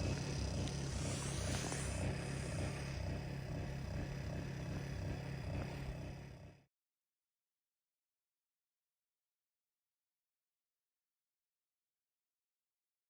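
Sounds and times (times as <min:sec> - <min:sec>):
gas flame rumbling: 0:00.0 - 0:06.5.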